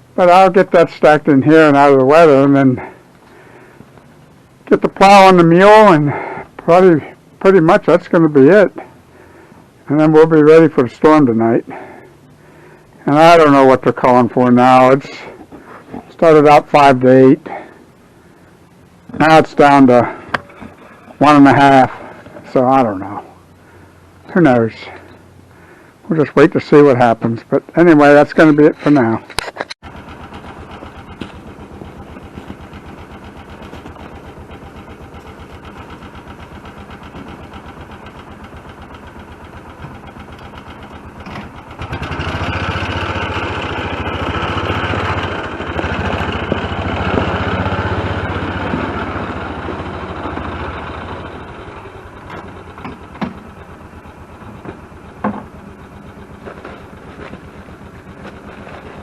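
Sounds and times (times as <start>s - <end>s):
vehicle engine idling and revving: 29.8s - 59.0s
sharp knocks: 54.6s - 55.5s.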